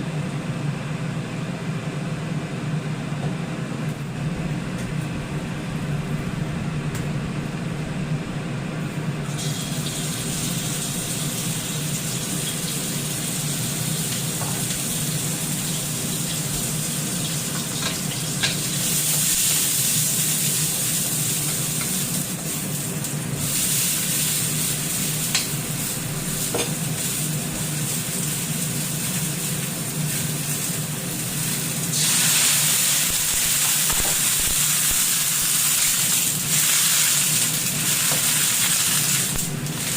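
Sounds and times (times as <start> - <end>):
steady low hum: 0.0 - 39.9
food sizzling in a hot pan: 9.3 - 39.9.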